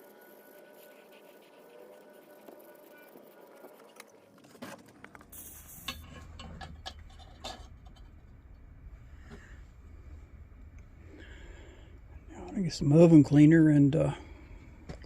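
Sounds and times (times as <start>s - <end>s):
brief hiss: 5.3s - 6.0s.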